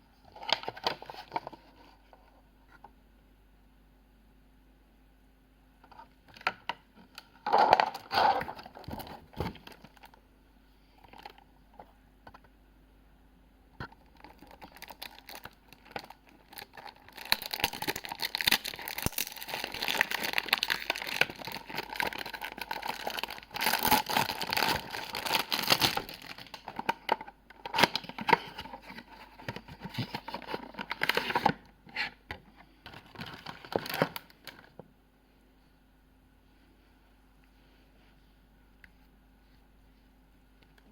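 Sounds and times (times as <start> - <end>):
wrapping crinkling and tearing: 14.1 - 31.6, 32.9 - 34.7.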